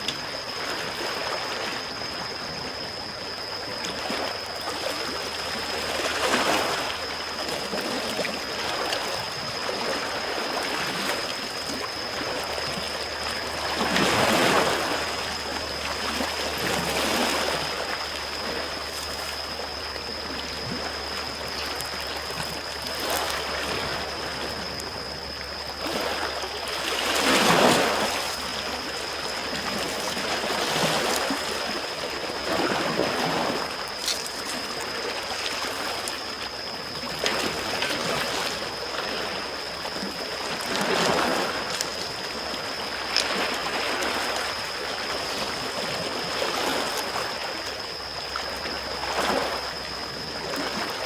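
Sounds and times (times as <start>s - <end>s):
small waves washing onto shore: 20.4s - 51.0s.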